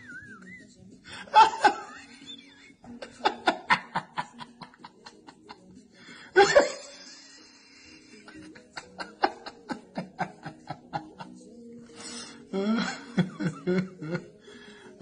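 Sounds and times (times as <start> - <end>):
person laughing: 1.2 - 5.6, 6.4 - 11.4, 12.5 - 14.3.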